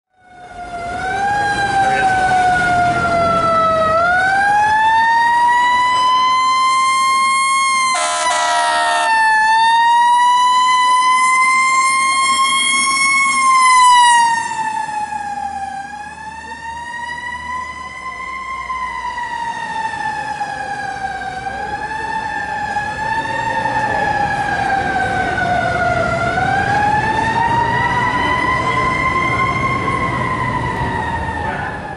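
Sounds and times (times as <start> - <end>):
fire engine rumble: 0.1 - 31.9
mechanical siren wailing: 0.2 - 31.9
air horn blast: 7.9 - 9.2.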